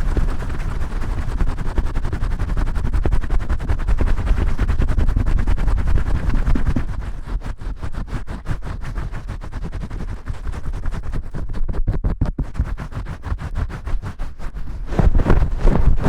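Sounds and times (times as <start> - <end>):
hands scrubbing on microphone: 0.0 - 16.0.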